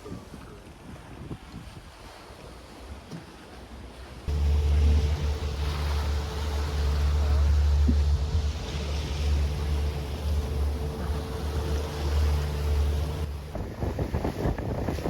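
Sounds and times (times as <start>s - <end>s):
wind buffeting microphone: 0.0s - 2.1s, 4.3s - 15.0s
water noise: 0.0s - 15.0s
boat motor running: 4.3s - 15.0s.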